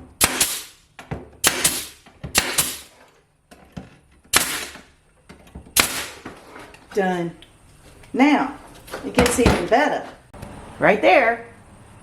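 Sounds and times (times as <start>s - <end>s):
nail gun firing: 0.2s - 0.8s, 1.4s - 2.9s, 4.3s - 4.9s, 5.8s - 6.2s.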